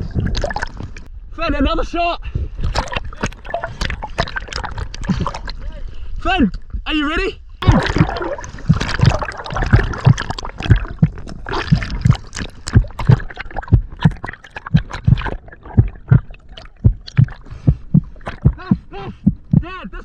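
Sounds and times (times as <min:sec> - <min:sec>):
water gurgling and sloshing: 0:00.0 - 0:01.1, 0:02.4 - 0:06.8, 0:07.6 - 0:19.6
low thumps: 0:07.6 - 0:19.8.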